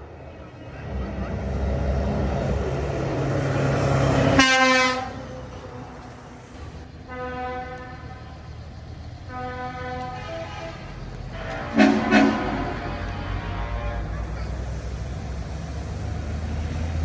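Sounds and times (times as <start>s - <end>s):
truck engine driving by: 0.0s - 17.0s
air horn blasts: 4.3s - 5.3s, 7.1s - 8.4s, 9.3s - 14.3s.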